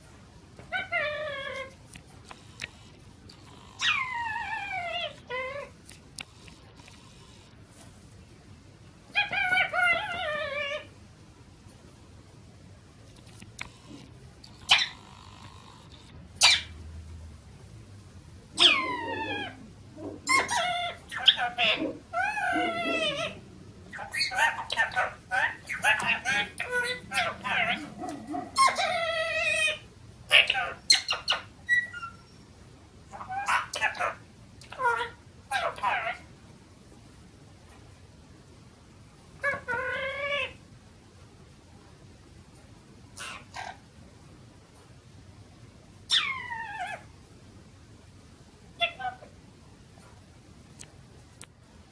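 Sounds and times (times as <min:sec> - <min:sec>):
parrot calling: 0:00.7 - 0:01.8, 0:03.6 - 0:05.7, 0:09.1 - 0:10.9, 0:14.7 - 0:15.1, 0:16.4 - 0:16.8, 0:18.6 - 0:32.4, 0:33.1 - 0:36.3, 0:39.4 - 0:40.6, 0:43.2 - 0:43.8, 0:46.1 - 0:47.1, 0:48.8 - 0:49.3
parrot meow-like call: 0:18.6 - 0:19.6, 0:20.3 - 0:29.8.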